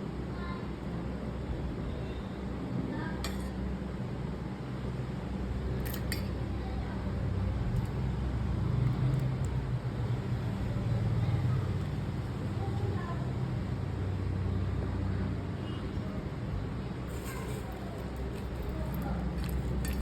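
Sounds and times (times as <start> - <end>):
vehicle hum on road: 0.0 - 20.0
sharp clicks and clinks: 17.1 - 20.0.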